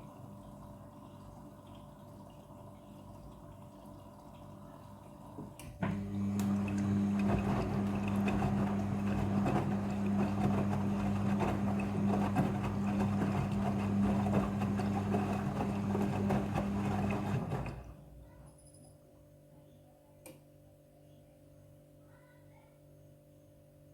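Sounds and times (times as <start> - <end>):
washing machine hum: 0.0 - 18.5
water churning: 6.0 - 17.9.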